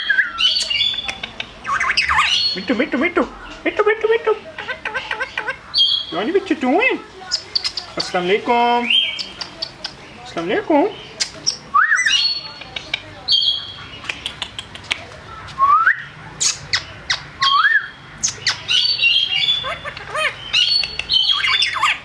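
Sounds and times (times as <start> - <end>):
parrot squawking and whistling: 11.4 - 12.4, 15.6 - 22.0.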